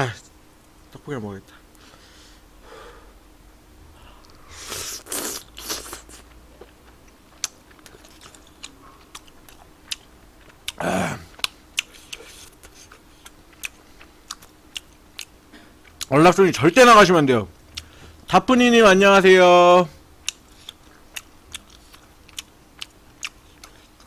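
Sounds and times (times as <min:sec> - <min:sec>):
wet chewing clicks: 0:05.1 - 0:10.8, 0:11.4 - 0:16.1, 0:20.2 - 0:24.0.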